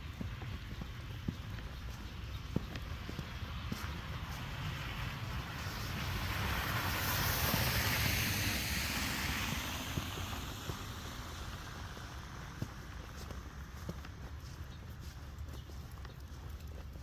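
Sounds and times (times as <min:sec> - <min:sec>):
vehicle tyre hiss on snowy road: 0:03.2 - 0:14.2.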